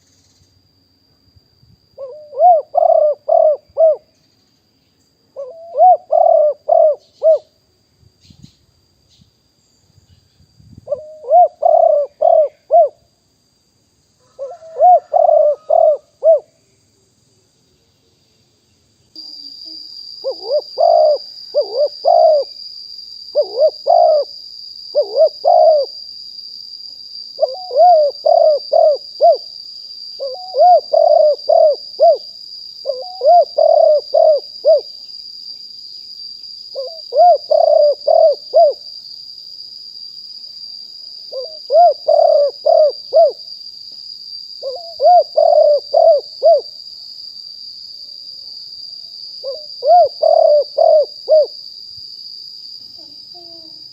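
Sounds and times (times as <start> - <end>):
steady high-pitched whine: 0.0 - 53.9
dove cooing: 2.0 - 4.0, 5.4 - 7.5, 10.9 - 13.0, 14.2 - 16.5, 20.2 - 22.5, 23.4 - 24.3, 24.9 - 26.0, 27.4 - 29.5, 30.2 - 34.9, 36.8 - 38.8, 41.3 - 43.4, 44.6 - 46.7, 49.4 - 51.6, 53.0 - 53.8.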